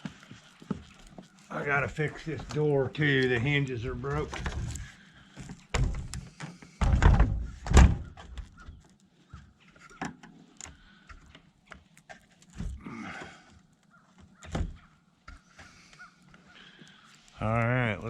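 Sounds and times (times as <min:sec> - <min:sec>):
heavy door thunks and knocks: 0:05.7 - 0:06.2, 0:06.8 - 0:08.2.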